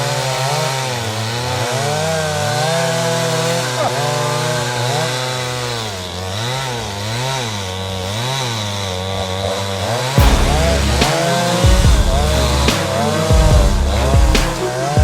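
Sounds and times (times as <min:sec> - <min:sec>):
chainsaws cutting wood: 0:00.0 - 0:15.0
loud low thud: 0:10.2 - 0:14.7.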